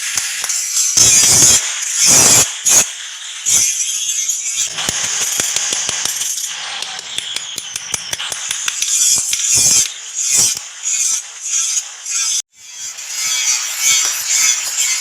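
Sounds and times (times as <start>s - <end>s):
hand tool scraping metal: 3.5s - 15.0s.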